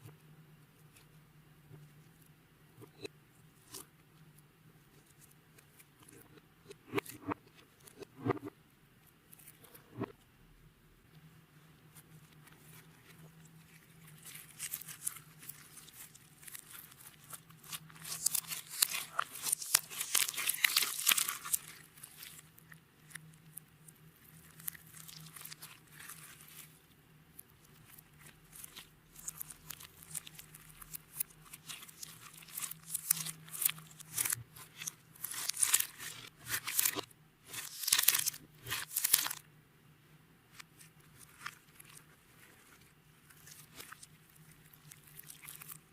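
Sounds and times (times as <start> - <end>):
slime crackling and popping: 13.7 - 26.8, 27.6 - 39.4, 43.4 - 45.9.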